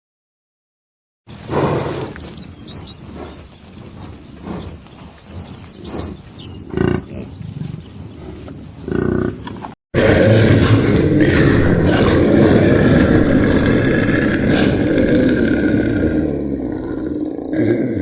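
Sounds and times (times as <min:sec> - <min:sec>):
large animal roaring: 0:08.2 - 0:18.0.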